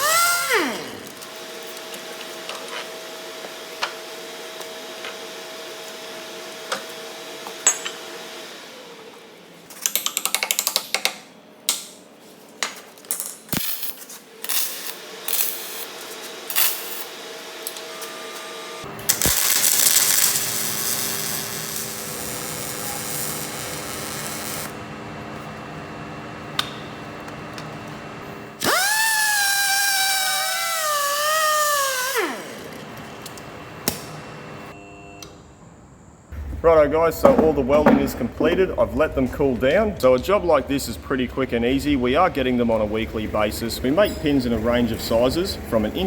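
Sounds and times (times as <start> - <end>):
motor whine wavering in pitch: 0.0 - 2.8, 14.8 - 35.6
power tool running: 0.0 - 9.4, 14.3 - 35.3.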